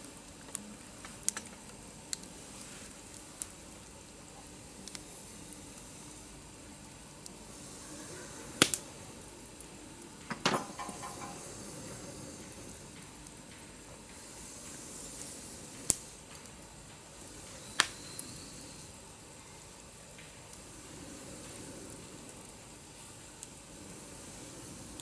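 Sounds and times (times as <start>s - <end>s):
campfire hissing: 0.0s - 25.0s
sharp fire pops: 8.5s - 8.9s, 10.2s - 16.6s, 17.3s - 18.3s.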